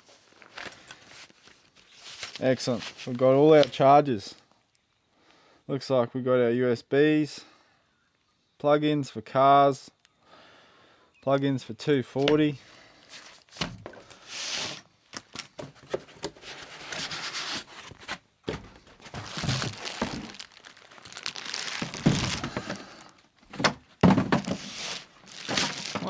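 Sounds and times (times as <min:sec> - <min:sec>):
packaging rustling and crinkling: 0:00.0 - 0:03.8, 0:12.2 - 0:26.0
thunks and knocks: 0:18.1 - 0:20.5, 0:21.6 - 0:22.8, 0:23.5 - 0:24.7.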